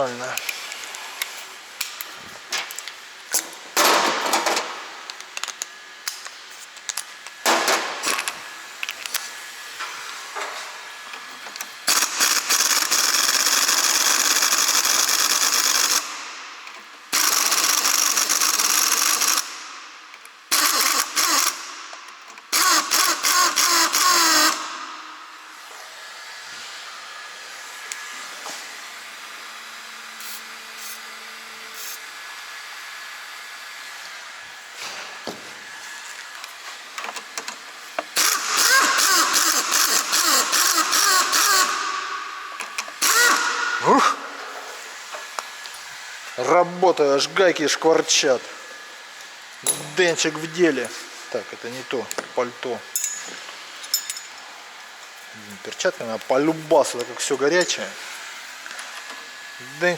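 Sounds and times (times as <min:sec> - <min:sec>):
impact wrench bursts: 0:06.9 - 0:09.2, 0:11.6 - 0:25.6, 0:36.9 - 0:54.4, 0:56.0 - 0:58.8.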